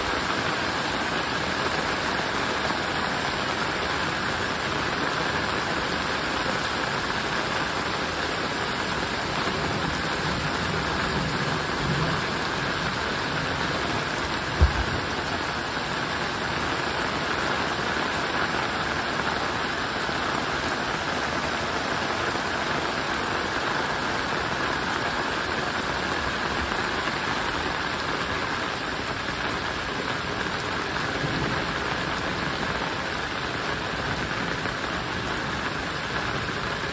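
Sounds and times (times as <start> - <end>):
heavy rain on water: 0.0 - 36.9
low thump: 14.5 - 15.4.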